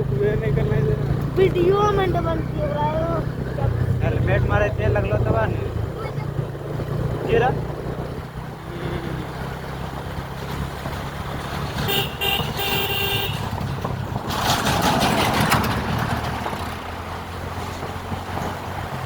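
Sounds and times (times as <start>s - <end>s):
motorcycle engine running: 0.0s - 19.0s
vehicle horn honking: 11.8s - 13.6s.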